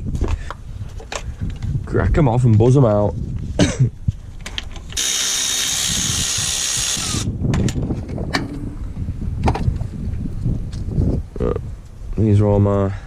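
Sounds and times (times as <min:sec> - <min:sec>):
power wrench spinning bolt: 0:04.8 - 0:07.3.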